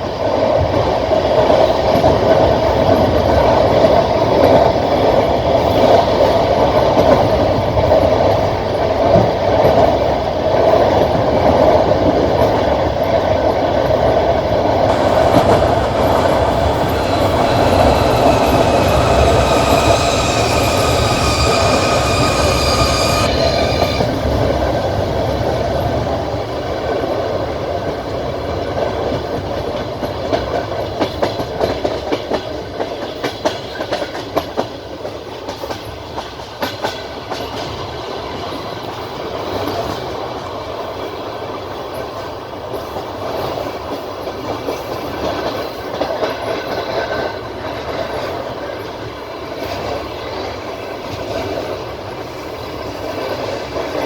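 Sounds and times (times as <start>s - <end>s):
train wheels rumbling: 14.4s - 28.2s
wheels clacking over rail joints: 14.9s - 25.0s
high multi-tone whine: 14.9s - 26.0s.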